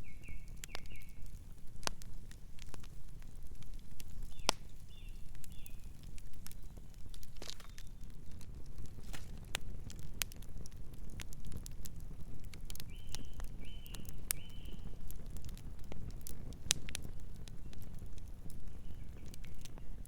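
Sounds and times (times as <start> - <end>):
campfire crackling: 0.0 - 20.0
bird chirping: 12.9 - 14.9.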